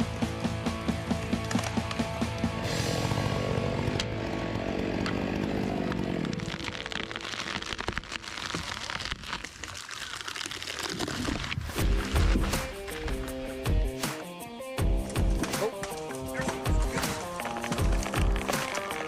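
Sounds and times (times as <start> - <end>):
sharp cracks and ticks: 0.8 - 2.6, 3.9 - 11.6, 12.4 - 19.0
chainsaw cutting wood: 1.5 - 8.2, 15.0 - 19.0.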